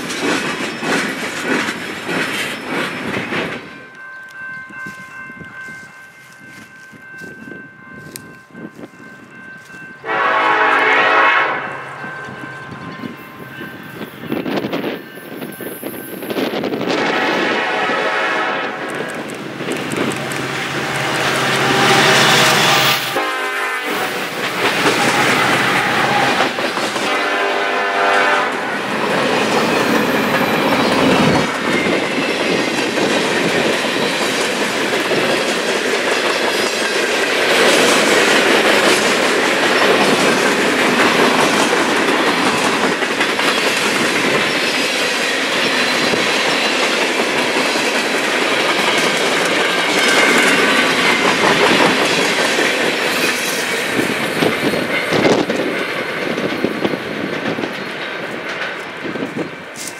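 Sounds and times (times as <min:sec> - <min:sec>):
steel wheels clattering on rails: 0:00.0 - 0:05.1, 0:23.9 - 0:59.9
locomotive droning tone: 0:03.5 - 0:32.1.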